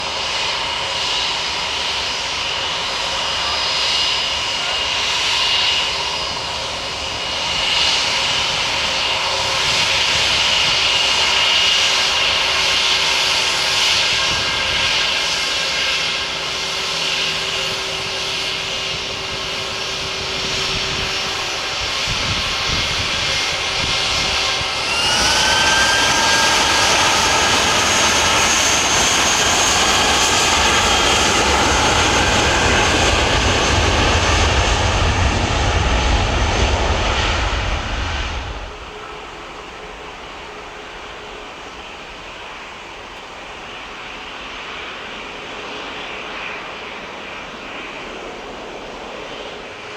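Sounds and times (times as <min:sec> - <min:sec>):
jet engines whining: 0:00.0 - 0:49.9
deep engine rumble: 0:18.8 - 0:39.6.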